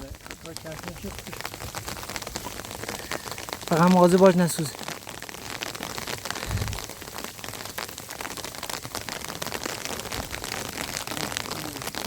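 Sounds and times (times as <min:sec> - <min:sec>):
rain patter: 0:00.0 - 0:12.0
low thump: 0:06.4 - 0:06.8.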